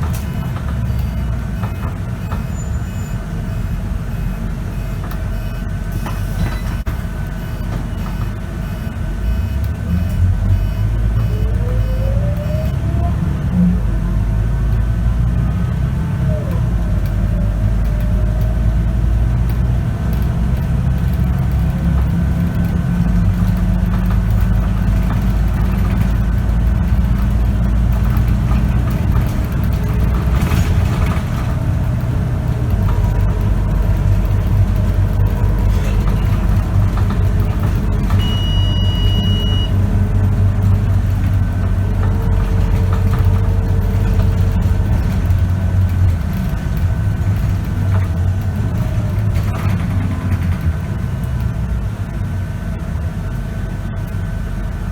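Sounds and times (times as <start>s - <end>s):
high-pitched beep: 0.0s - 12.8s, 38.2s - 39.8s
bus engine while driving: 0.0s - 54.9s.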